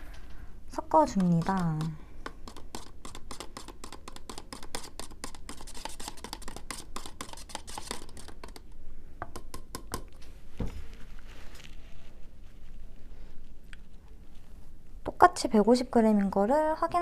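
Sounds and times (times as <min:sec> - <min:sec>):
spoon stirring thick yogurt: 0:00.8 - 0:10.2.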